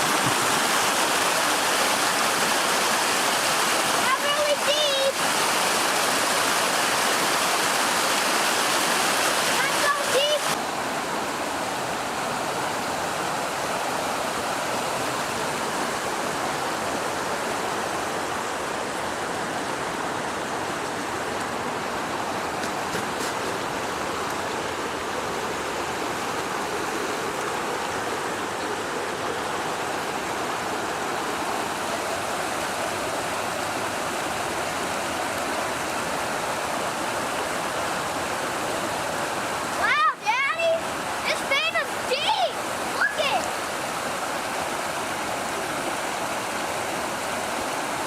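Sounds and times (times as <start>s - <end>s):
flooded creek rushing: 0.0s - 48.0s.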